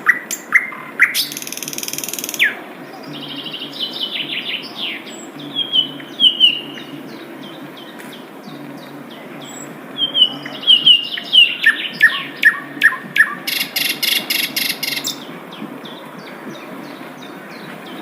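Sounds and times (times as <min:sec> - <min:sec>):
bird whistled notes: 0:10.0 - 0:15.3.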